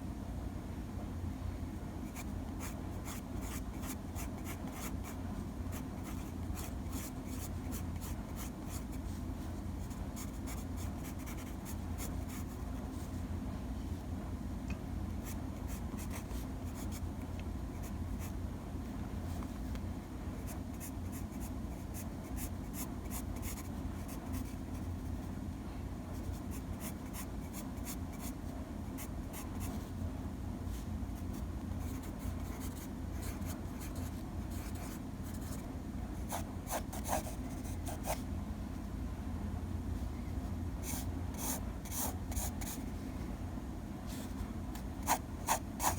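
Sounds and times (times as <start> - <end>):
pencil scratching and tapping: 44.8 - 45.9.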